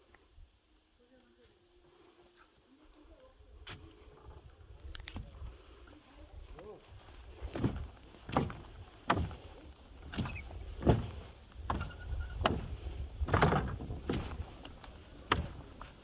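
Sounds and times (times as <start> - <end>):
footsteps crunching on trail: 2.2 - 16.0
wind rumble on microphone: 3.5 - 16.0.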